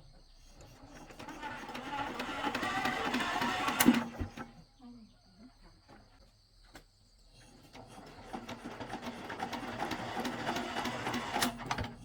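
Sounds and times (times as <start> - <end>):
rapid mechanical clatter: 0.8 - 4.5, 7.7 - 12.0.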